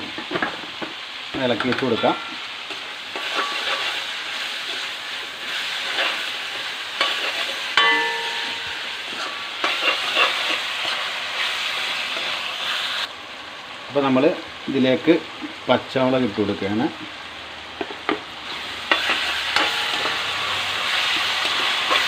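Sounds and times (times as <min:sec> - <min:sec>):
onions sizzling in a pan: 0:00.0 - 0:22.0
spatula scraping a pan: 0:02.7 - 0:12.9, 0:18.5 - 0:22.0
ringing clink: 0:07.8 - 0:08.9.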